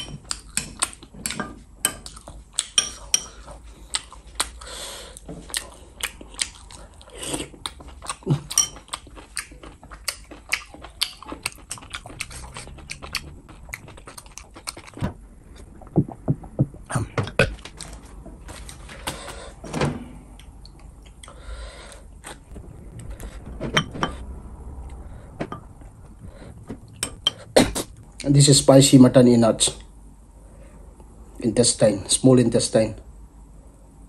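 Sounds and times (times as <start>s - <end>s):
wet mouth clicks and crunching: 5.5s - 16.3s.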